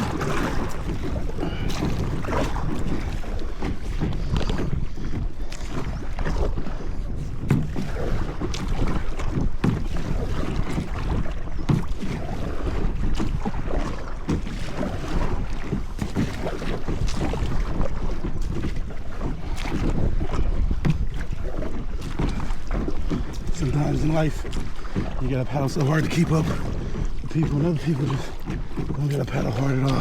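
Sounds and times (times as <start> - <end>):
paddle strokes splashing water: 0.0 - 30.0
wind on microphone: 0.0 - 30.0.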